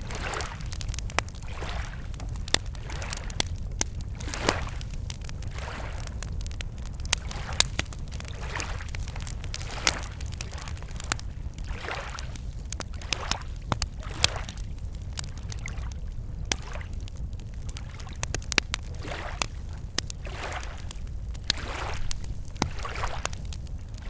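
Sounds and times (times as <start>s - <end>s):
lake waves lapping shore: 0.0s - 0.8s, 1.4s - 2.0s, 4.2s - 4.9s, 5.5s - 6.1s, 11.7s - 12.2s, 20.2s - 20.8s, 21.5s - 23.4s
campfire crackling and popping: 0.0s - 24.0s.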